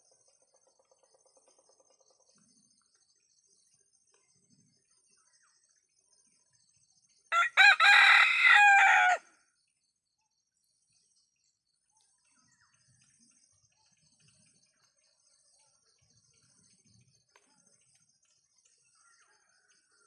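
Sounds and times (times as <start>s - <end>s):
rooster crowing: 7.3s - 9.3s.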